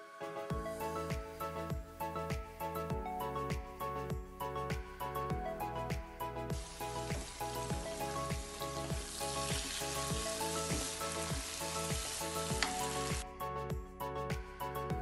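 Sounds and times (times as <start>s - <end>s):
background music with steady beat: 0.0s - 15.0s
food sizzling in a wok: 6.6s - 13.2s.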